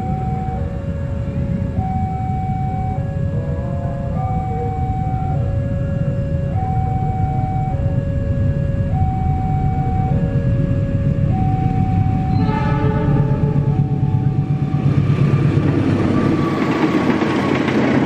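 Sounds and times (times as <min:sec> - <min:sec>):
train passing with heavy rumble: 0:00.0 - 0:18.0
two-tone warning alarm: 0:00.0 - 0:18.0
train horn: 0:10.1 - 0:17.0.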